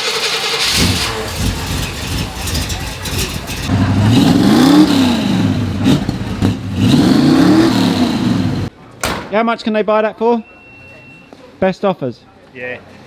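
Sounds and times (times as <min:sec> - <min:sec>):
pickup truck engine revving: 0:00.0 - 0:08.7.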